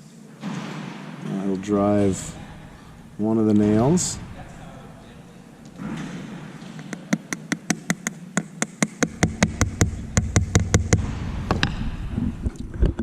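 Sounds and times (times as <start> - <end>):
hammer tapping a nail: 6.9 - 11.6.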